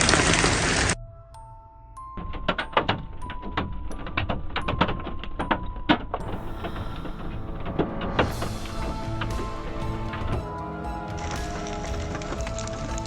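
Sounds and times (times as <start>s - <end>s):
hailstones striking hard surface: 11.2s - 13.0s.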